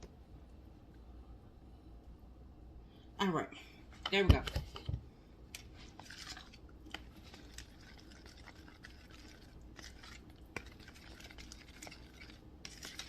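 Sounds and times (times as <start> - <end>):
low steady hum: 0.0 - 13.0
utensil scraping a dish: 5.8 - 13.0.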